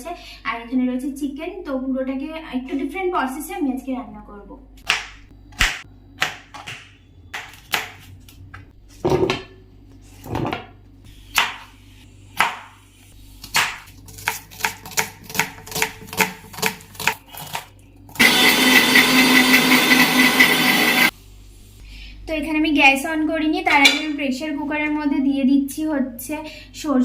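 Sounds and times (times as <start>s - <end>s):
loud steady whirring: 18.1s - 21.1s.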